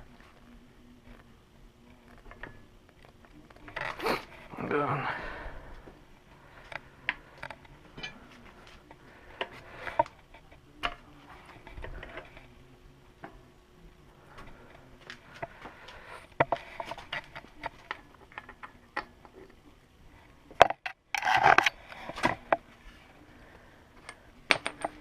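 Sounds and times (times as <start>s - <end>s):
tools clicking and tapping: 6.7s - 8.2s, 24.1s - 25.0s.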